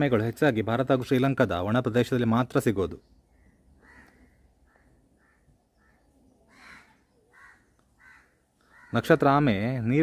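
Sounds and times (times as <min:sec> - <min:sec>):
faint bird calls: 0:02.9 - 0:09.8.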